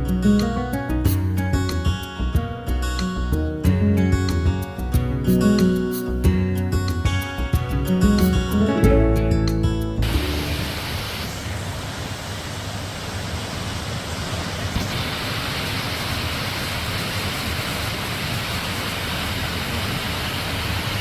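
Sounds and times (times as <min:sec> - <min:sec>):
waterfall rushing: 0:10.0 - 0:21.0.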